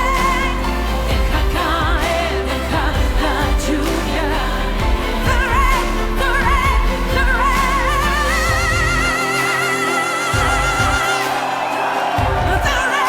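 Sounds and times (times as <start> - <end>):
woman singing with vibrato: 0.0 - 13.0
live band with drums: 4.8 - 13.0.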